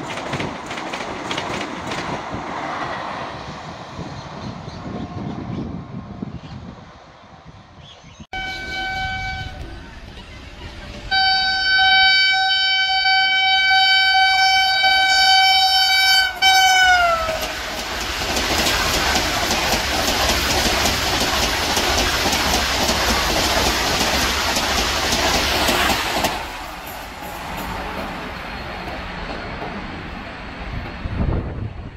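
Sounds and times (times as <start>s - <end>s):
train rushing past: 0.0s - 7.8s, 8.4s - 31.9s
train horn blast: 8.3s - 9.7s, 11.1s - 17.6s.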